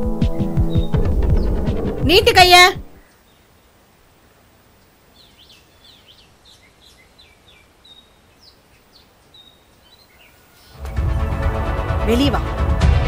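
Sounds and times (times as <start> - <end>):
low background hiss: 2.0 - 10.8
faint bird chirps: 2.9 - 4.0, 4.7 - 10.8.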